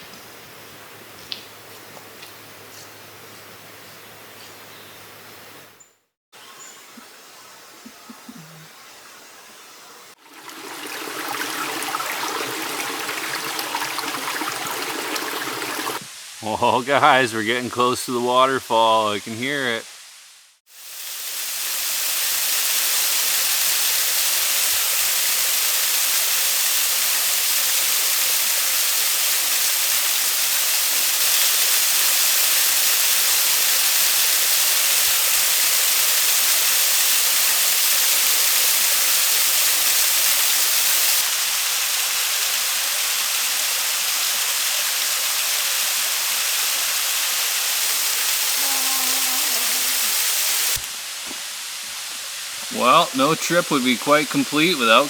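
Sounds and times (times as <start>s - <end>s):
waterfall rushing: 10.2s - 19.8s, 47.5s - 55.0s.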